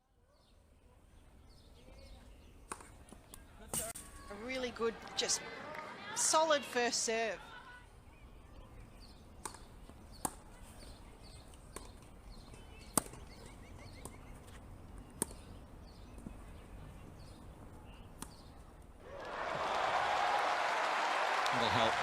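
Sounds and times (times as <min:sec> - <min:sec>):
applause: 0:05.5 - 0:06.0, 0:19.0 - 0:22.0
rackets striking tennis ball: 0:09.4 - 0:10.4, 0:12.8 - 0:13.3.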